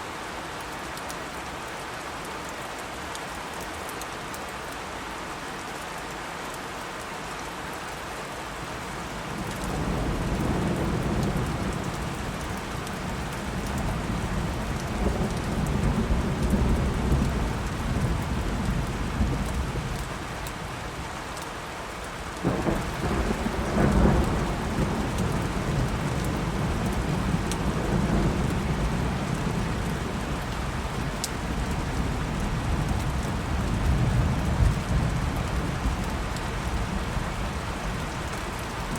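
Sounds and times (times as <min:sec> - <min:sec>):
steady rain: 0:00.0 - 0:38.9
thunder rumbling: 0:09.3 - 0:20.0, 0:22.4 - 0:38.3
sharp crack of thunder: 0:22.4 - 0:32.8.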